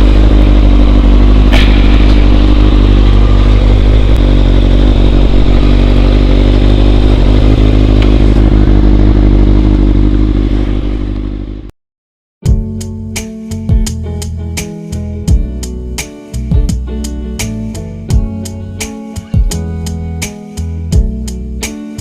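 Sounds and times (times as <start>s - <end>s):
motorcycle engine rumbling: 0.0s - 11.7s.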